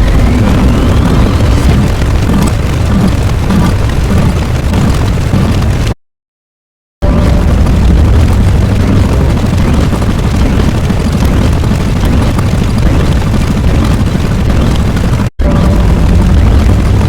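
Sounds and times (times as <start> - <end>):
loud low explosion rumble: 0.0 - 6.0, 7.0 - 12.2, 15.4 - 17.0.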